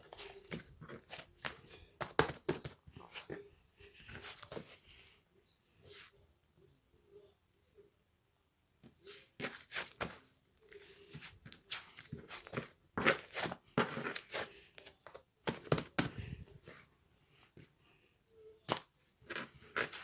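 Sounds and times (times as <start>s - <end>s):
crunching and rustling: 0.0s - 3.3s.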